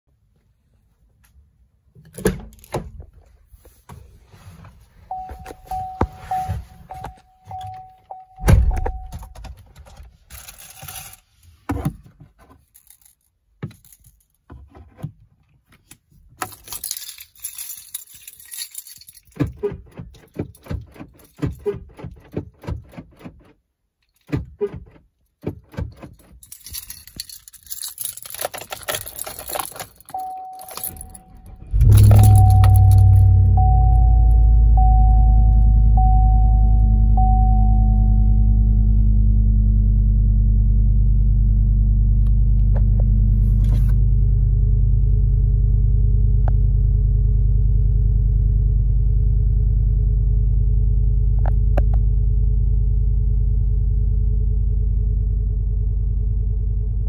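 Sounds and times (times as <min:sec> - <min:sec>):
electronic warning chime: 0:05.1 - 0:09.3, 0:30.1 - 0:38.8
keys jangling: 0:12.6 - 0:14.4, 0:16.4 - 0:22.2, 0:25.9 - 0:33.6
small clicks and rattles: 0:25.7 - 0:31.1
truck engine starting: 0:29.0 - 0:57.0.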